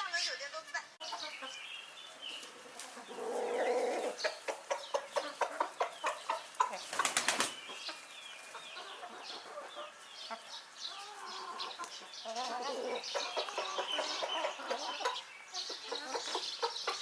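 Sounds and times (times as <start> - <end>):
chickens flapping wings: 6.6 - 7.7.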